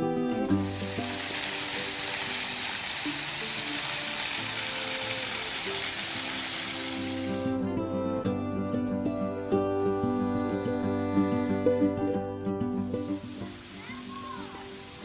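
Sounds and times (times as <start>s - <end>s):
background music: 0.0s - 15.0s
rushing water of waterfall: 0.5s - 7.5s, 13.1s - 15.0s.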